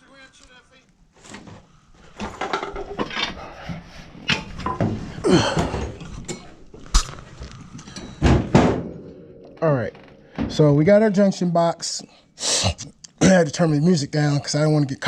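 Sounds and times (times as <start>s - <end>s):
metal tools clinking and knocking: 2.2s - 3.5s, 5.6s - 6.6s, 7.7s - 8.3s.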